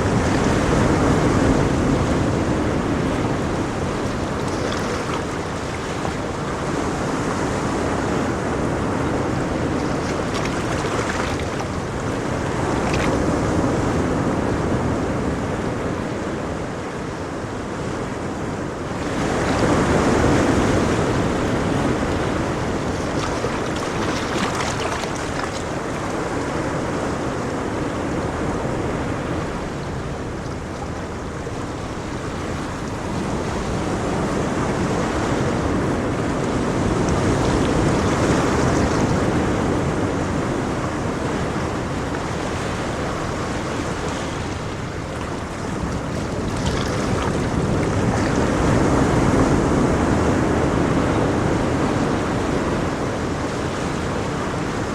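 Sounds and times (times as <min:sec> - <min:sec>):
ocean waves breaking on shore: 0:00.0 - 0:54.9.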